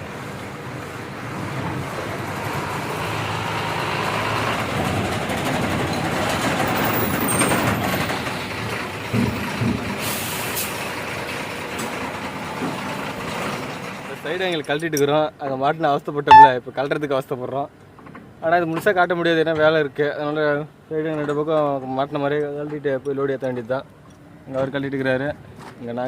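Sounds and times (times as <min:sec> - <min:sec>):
diesel truck engine moving slowly: 0:00.0 - 0:14.4
air brake hiss: 0:10.0 - 0:10.7.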